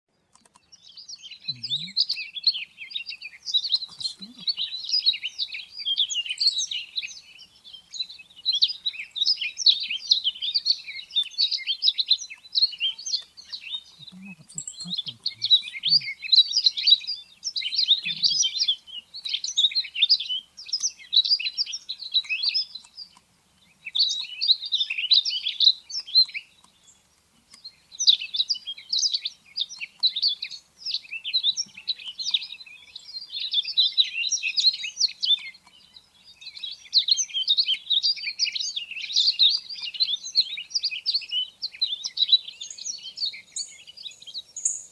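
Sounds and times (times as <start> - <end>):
bird twittering: 0.8 - 23.2, 39.0 - 44.9.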